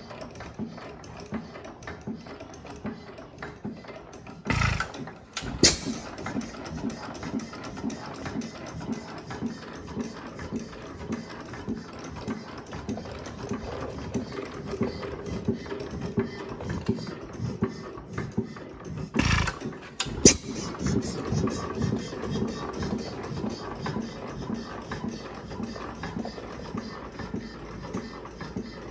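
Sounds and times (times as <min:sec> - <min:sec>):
sharp bang: 0:04.5 - 0:06.2
short loud burst of noise: 0:04.5 - 0:06.2, 0:19.2 - 0:20.8
stationary engine running: 0:04.5 - 0:06.5, 0:19.2 - 0:21.6.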